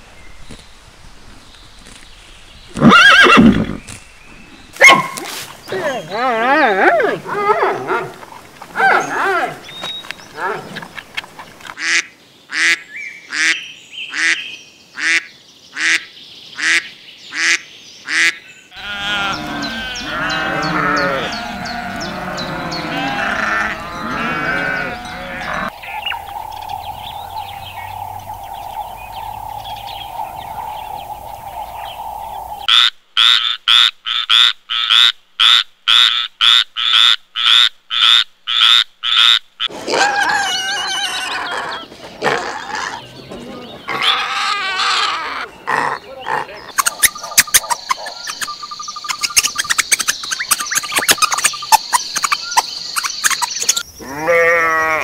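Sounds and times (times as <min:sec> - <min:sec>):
ducks quacking: 0:15.0 - 0:26.6
overlapping animal calls: 0:17.4 - 0:33.3, 0:35.9 - 0:55.0
sharp animal calls: 0:17.4 - 0:43.1, 0:43.8 - 0:55.0
piglets grunting: 0:18.8 - 0:25.7, 0:43.8 - 0:48.4.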